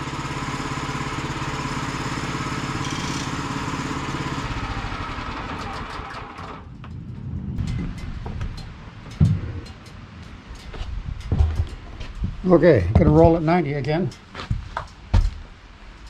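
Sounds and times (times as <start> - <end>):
sawmill gasoline engine running: 0.0 - 6.7.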